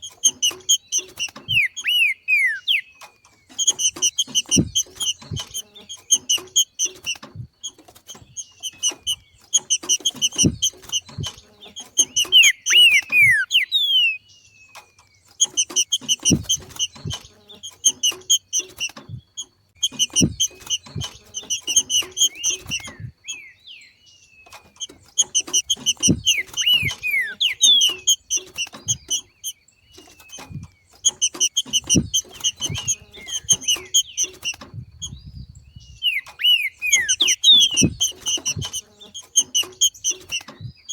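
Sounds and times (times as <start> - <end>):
bird chattering call: 0.0 - 7.1, 8.4 - 14.3, 19.8 - 23.6, 24.8 - 35.2, 35.9 - 40.6
falling whistled bird notes: 1.4 - 2.9, 12.0 - 14.3, 26.0 - 28.2.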